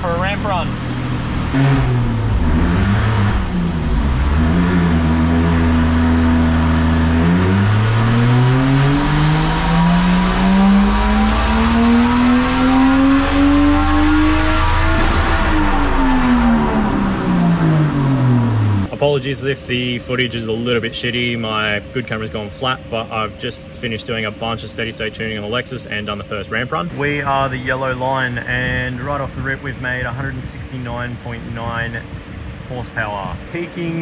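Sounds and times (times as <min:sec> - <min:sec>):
car engine revving on a dyno: 0:00.0 - 0:18.9.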